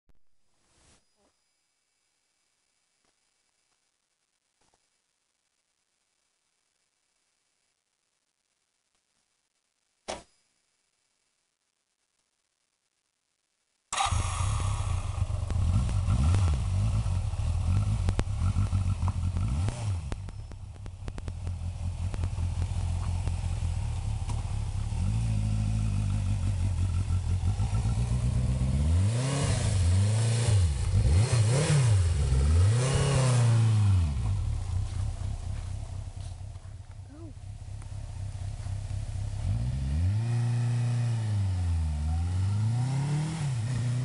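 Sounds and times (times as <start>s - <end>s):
motorcycle engine revving: 14.0s - 44.0s.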